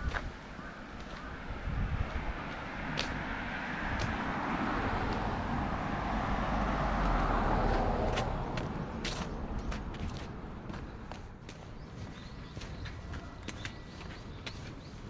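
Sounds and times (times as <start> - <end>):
vehicle passing close by: 1.7 - 10.6.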